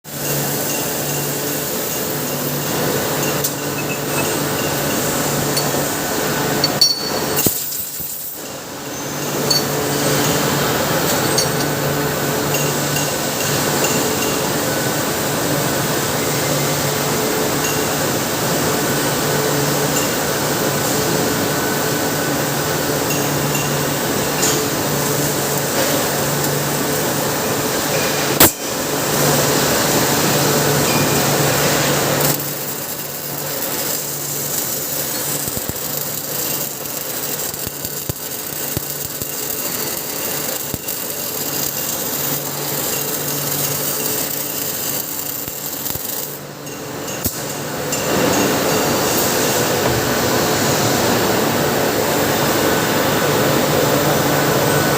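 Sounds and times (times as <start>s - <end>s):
welding hiss: 0.1s - 15.2s, 22.6s - 52.3s
metallic clinks: 6.6s - 7.8s
machine hum: 24.0s - 46.6s.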